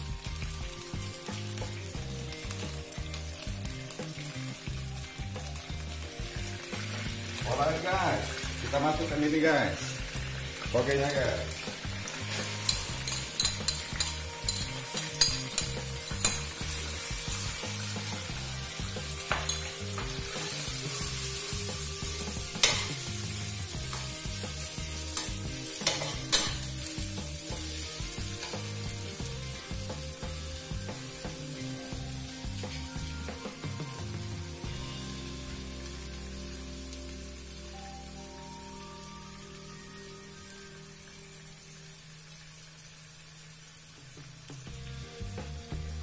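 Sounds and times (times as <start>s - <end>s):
bean sprouts sizzling in a wok: 0.0s - 46.0s
spatula scraping wok: 10.0s - 29.6s
spatula clacking against pan: 12.6s - 16.6s.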